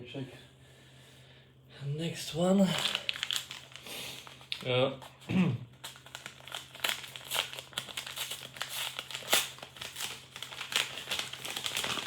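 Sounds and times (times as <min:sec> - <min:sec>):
packaging crinkling: 0:02.4 - 0:12.0.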